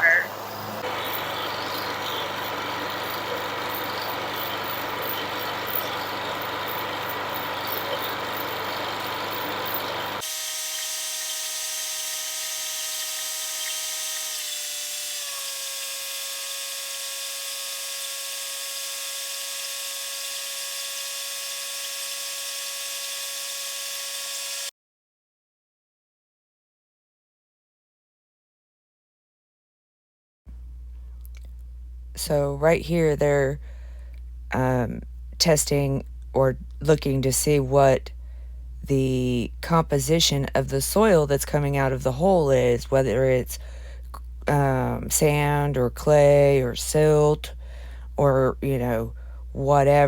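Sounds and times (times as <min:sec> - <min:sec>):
engine whine: 0:00.0 - 0:11.3
drilling rig running: 0:00.0 - 0:24.7.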